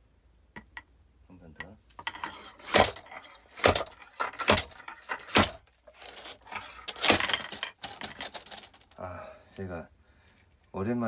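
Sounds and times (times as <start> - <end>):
splitter weight striking log: 2.5 - 5.6.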